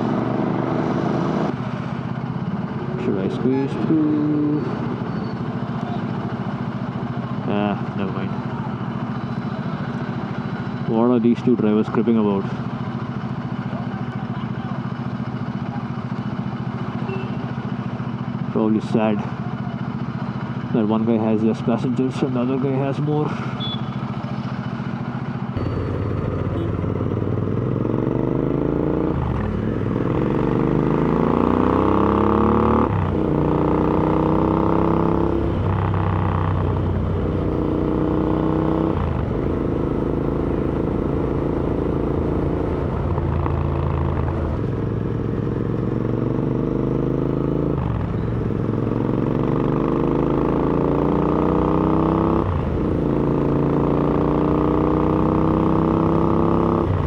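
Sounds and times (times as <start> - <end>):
motorcycle engine shifting gears: 23.6 - 57.0.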